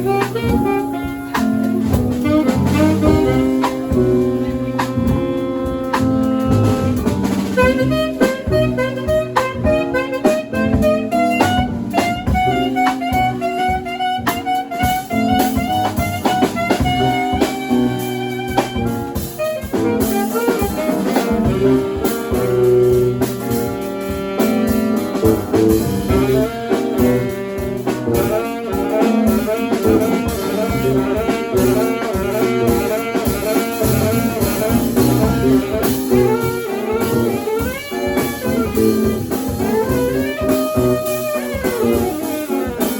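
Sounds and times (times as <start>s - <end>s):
drum kit: 0.0s - 42.9s
saxophone fast runs: 0.0s - 42.9s.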